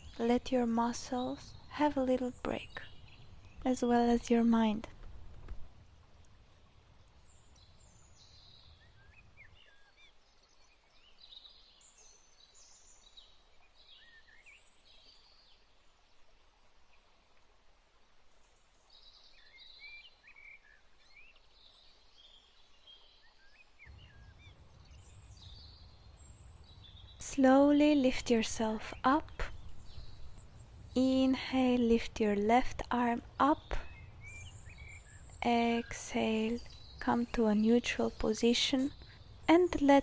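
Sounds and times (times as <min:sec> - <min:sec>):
faint bird chirps and whistles: 0:07.3 - 0:15.6, 0:18.8 - 0:27.2.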